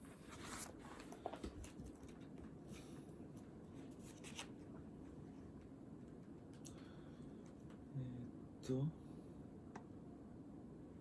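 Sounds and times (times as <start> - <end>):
rustling and scratching at desk: 0.0 - 5.5
low room hum: 0.0 - 11.0.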